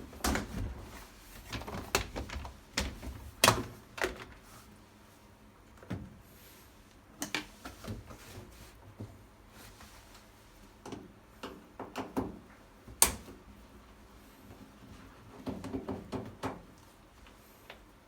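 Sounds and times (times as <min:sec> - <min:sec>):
clicks and knocks of handling: 0:07.2 - 0:08.1.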